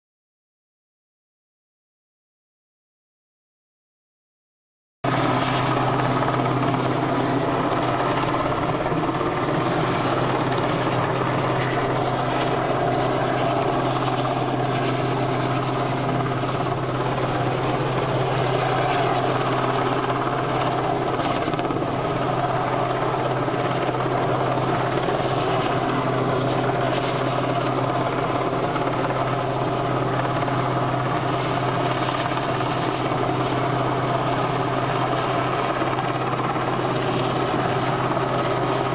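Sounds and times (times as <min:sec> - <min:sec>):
helicopter rotors and engines: 0:05.0 - 0:38.9.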